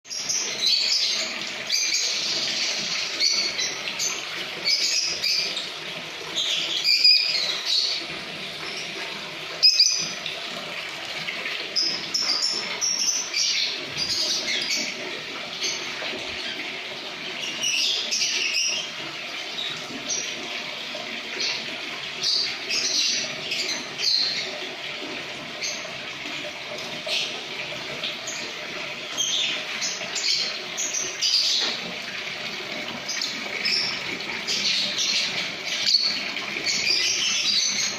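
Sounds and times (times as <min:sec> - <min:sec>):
lovebirds chirping and chattering: 0:00.1 - 0:09.0.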